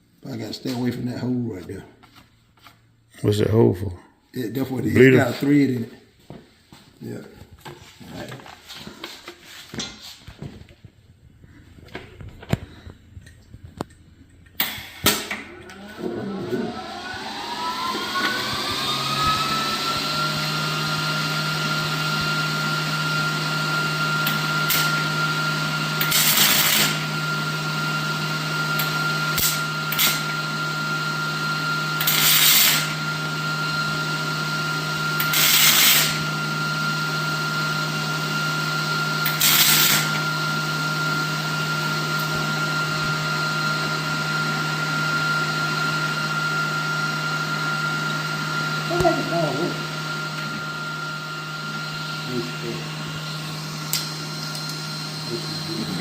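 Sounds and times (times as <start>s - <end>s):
power tool motor running: 14.6s - 56.0s.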